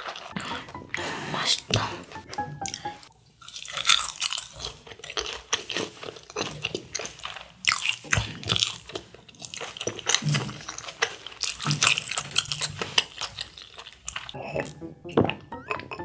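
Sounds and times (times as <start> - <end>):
crisp crunching of fried food: 0.0 - 0.4, 3.4 - 14.4
chewing: 0.0 - 0.7, 3.4 - 16.0.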